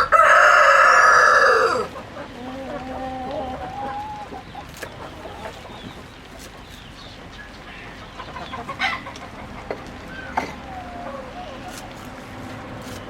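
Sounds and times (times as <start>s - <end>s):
rooster crowing: 0.0s - 1.9s
chickens clucking: 0.0s - 13.0s.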